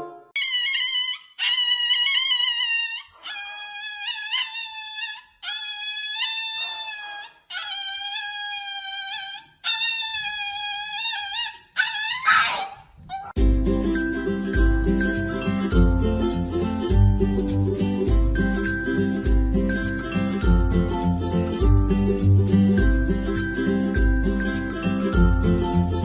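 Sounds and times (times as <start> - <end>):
dog howling: 0.4 - 13.4.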